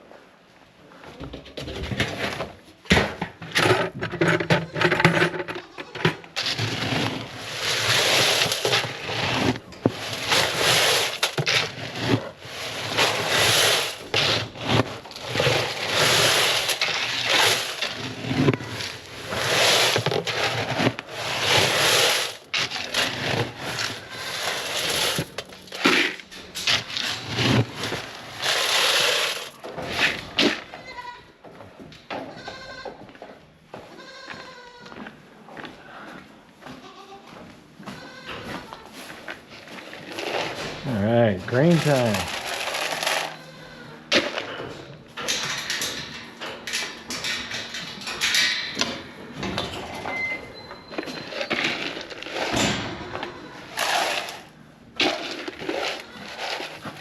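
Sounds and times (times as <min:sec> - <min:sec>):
rough scraping strokes: 0:05.8 - 0:30.3, 0:39.8 - 0:43.6, 0:53.7 - 0:57.0.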